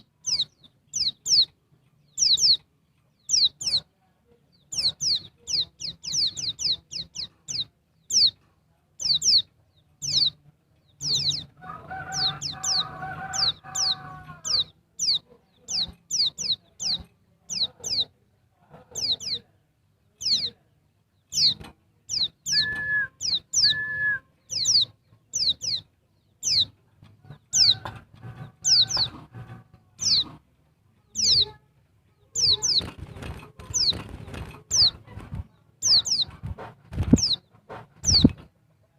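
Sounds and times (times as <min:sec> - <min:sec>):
high bird chirps: 0:00.0 - 0:03.9, 0:04.5 - 0:08.4, 0:09.0 - 0:18.1, 0:21.2 - 0:29.2, 0:30.0 - 0:30.4, 0:31.0 - 0:31.6, 0:32.2 - 0:36.4
bird clucking calls: 0:11.0 - 0:19.5, 0:21.4 - 0:30.5, 0:32.3 - 0:38.9.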